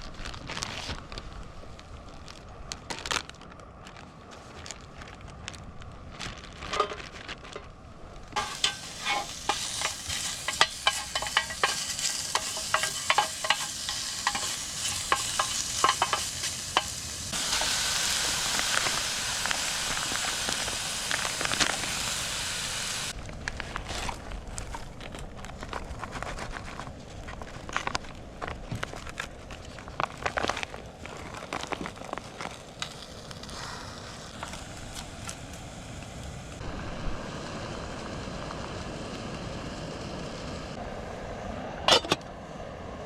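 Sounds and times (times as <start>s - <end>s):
food sizzling in a pan: 8.4s - 23.2s.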